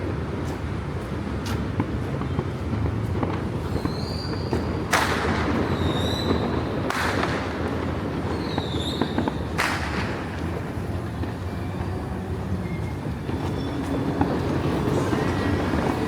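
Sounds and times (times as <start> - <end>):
low street rumble: 0.0 - 16.0
fireworks bangs with crackle: 1.3 - 16.0
fireworks whistle: 3.6 - 16.0.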